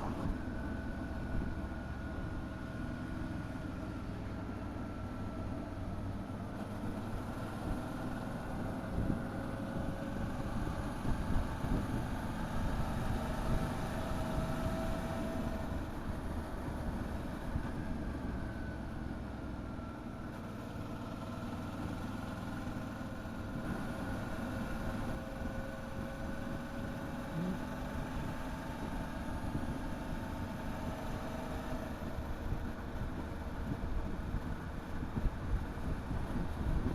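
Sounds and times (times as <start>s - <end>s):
wind and road noise: 0.0s - 36.9s
motorcycle engine running: 20.3s - 30.0s.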